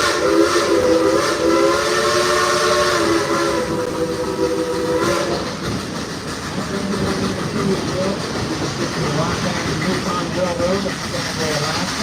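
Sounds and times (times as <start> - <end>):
steam whistle blowing: 0.0 - 5.6
train rumble and clatter: 0.0 - 12.0.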